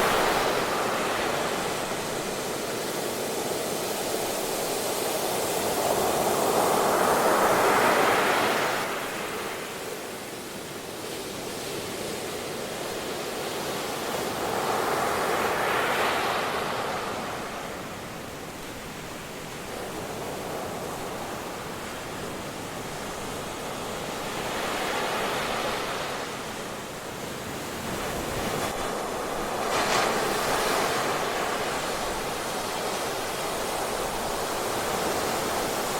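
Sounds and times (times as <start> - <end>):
ocean waves breaking: 27.6 - 35.9.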